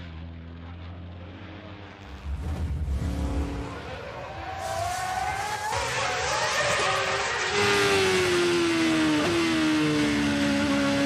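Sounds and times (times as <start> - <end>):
race car engine accelerating: 3.0 - 11.0.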